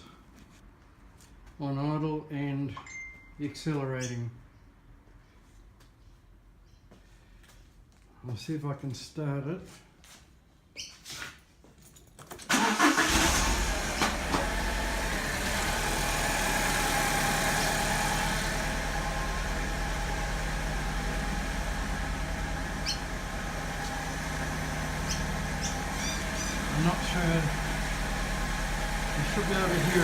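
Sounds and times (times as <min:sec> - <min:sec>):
car engine starting and idling: 0:12.5 - 0:30.0.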